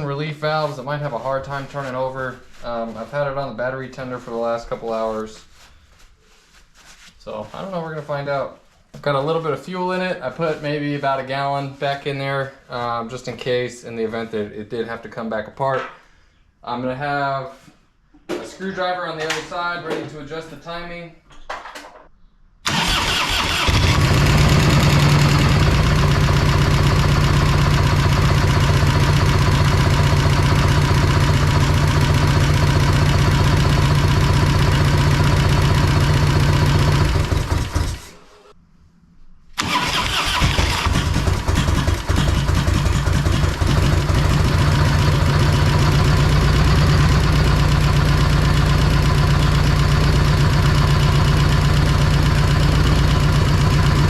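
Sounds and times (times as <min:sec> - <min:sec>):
motorcycle engine starting and running: 0:22.7 - 0:38.2, 0:39.6 - 0:54.0.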